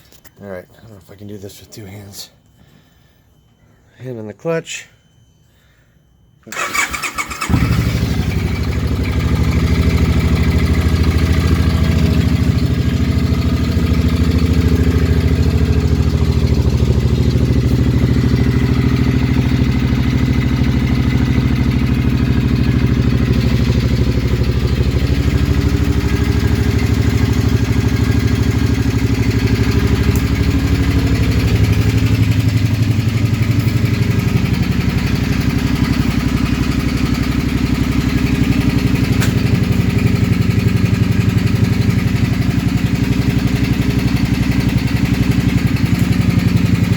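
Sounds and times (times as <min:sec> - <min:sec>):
starter motor cranking: 0:06.5 - 0:08.2
motorcycle engine idling: 0:06.5 - 0:46.9.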